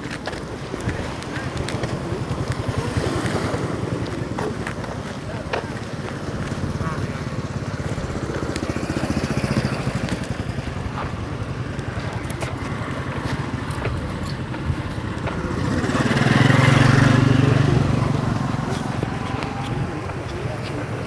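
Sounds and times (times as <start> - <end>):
motorcycle engine passing: 0.8 - 21.0.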